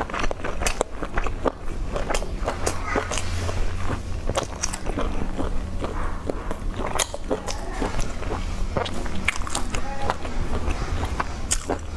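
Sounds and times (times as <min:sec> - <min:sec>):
person chewing food: 0:00.0 - 0:11.9
steady low hum: 0:00.0 - 0:11.9.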